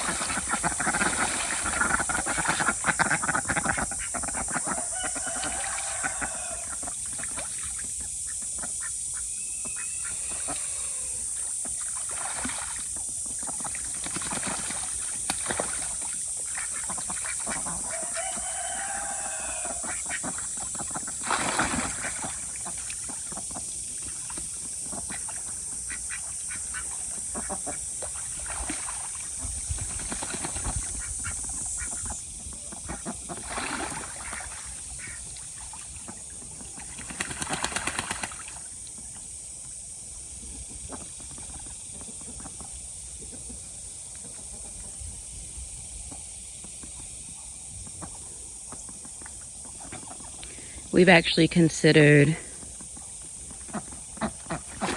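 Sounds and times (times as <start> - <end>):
ducks calling: 0.0 - 7.4, 16.4 - 28.3.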